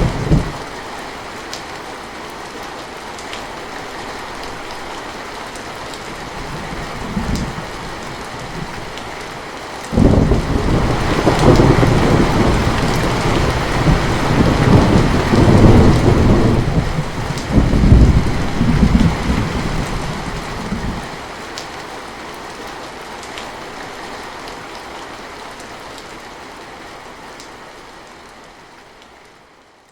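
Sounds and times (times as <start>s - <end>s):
rolling thunderclap: 0.0s - 0.6s, 9.9s - 21.1s
heavy rain: 0.0s - 29.9s.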